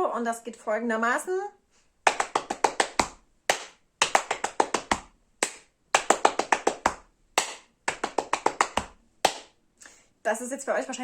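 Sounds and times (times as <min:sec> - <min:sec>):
hand clap: 0:02.1 - 0:09.6
hand slaps on body: 0:02.1 - 0:09.6.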